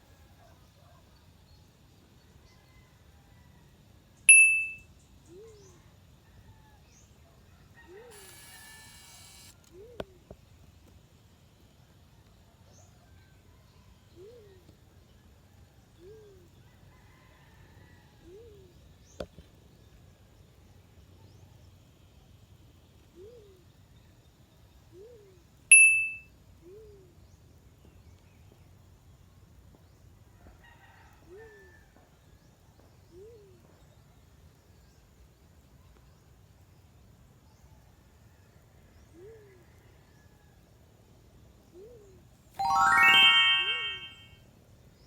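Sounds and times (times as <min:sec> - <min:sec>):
bright ding: 0:04.3 - 0:04.8, 0:25.7 - 0:26.2, 0:42.6 - 0:44.3.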